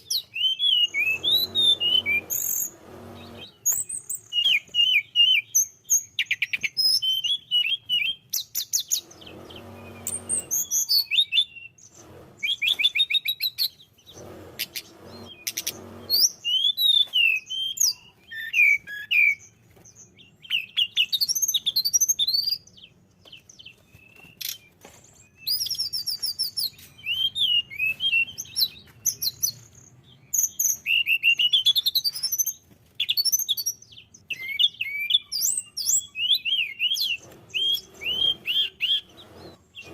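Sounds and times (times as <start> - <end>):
bird singing whistles and trills: 0.0 - 9.3, 9.9 - 14.2, 15.2 - 39.9
harsh bird buzzing: 0.2 - 4.6, 8.8 - 11.2, 11.8 - 17.0, 36.6 - 39.9.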